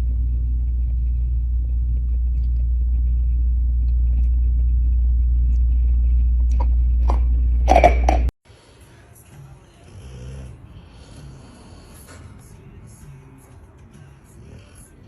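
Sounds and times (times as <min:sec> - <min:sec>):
vehicle rumbling in motion: 0:00.0 - 0:08.3.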